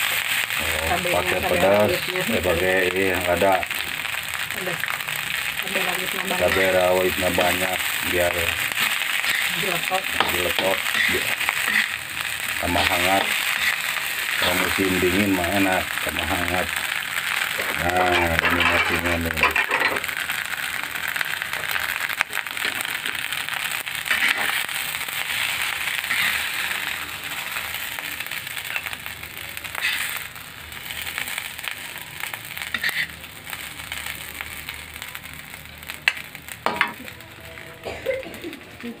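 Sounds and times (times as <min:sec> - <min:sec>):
fried rice sizzling in a pan: 0:00.0 - 0:39.0
metal spatula scraping a pan: 0:08.5 - 0:15.1, 0:17.3 - 0:20.1, 0:24.0 - 0:27.0, 0:29.7 - 0:30.3, 0:32.6 - 0:33.2.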